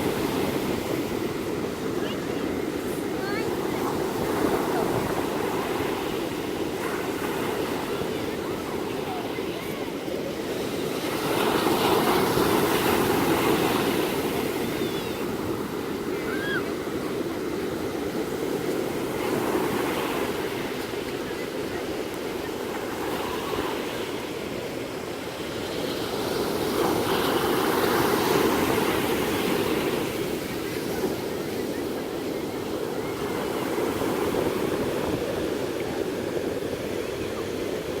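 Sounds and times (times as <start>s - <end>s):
ocean waves washing in: 0.0s - 38.0s.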